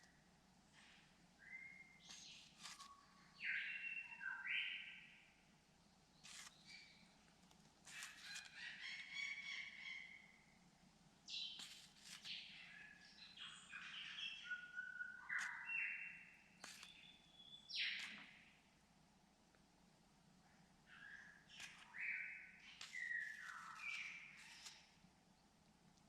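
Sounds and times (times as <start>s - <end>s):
birds whistling: 12.3s - 18.2s, 20.9s - 24.8s
bird clicks: 16.6s - 17.1s, 17.8s - 18.3s.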